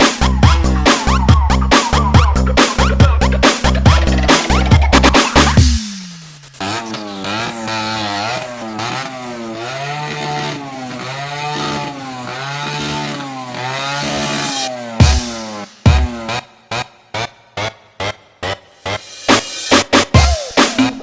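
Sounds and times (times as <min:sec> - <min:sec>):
electronic dance music bass beat: 0:00.0 - 0:09.4, 0:14.9 - 0:21.0
motorcycle engine revving: 0:00.0 - 0:21.0.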